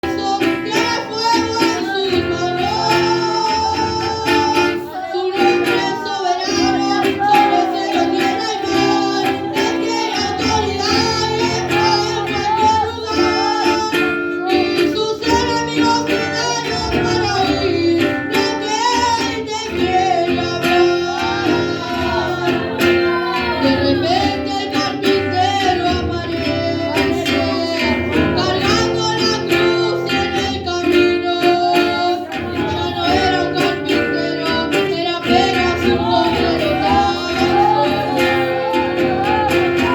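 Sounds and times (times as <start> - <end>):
person singing: 0.0 - 39.9
plucked guitar: 0.0 - 39.9.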